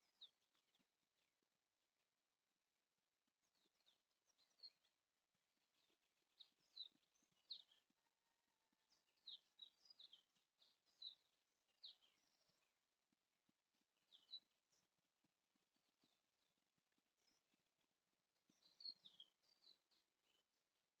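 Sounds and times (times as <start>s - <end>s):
faint bird chirps: 0.0s - 1.3s, 3.4s - 5.0s, 5.6s - 12.8s, 14.0s - 14.9s, 18.4s - 20.5s.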